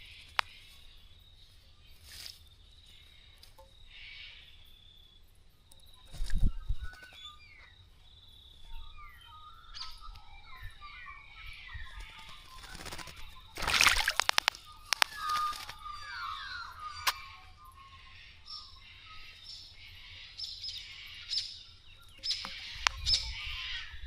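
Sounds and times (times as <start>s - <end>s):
small birds chirping: 0.0s - 24.0s
wing-beats flicking water: 11.9s - 16.6s
water splashing: 13.6s - 15.6s.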